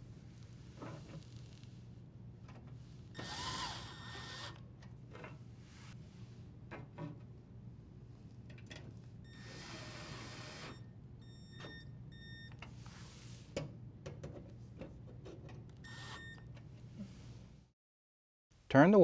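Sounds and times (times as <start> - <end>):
cordless drill whirring: 3.2 - 4.6, 9.4 - 10.8.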